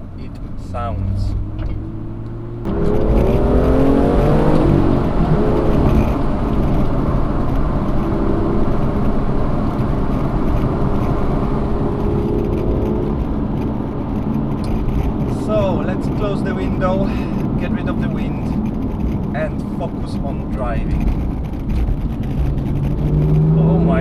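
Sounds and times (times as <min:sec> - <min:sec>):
wind and road noise: 0:00.0 - 0:24.0
car engine accelerating: 0:00.3 - 0:24.0.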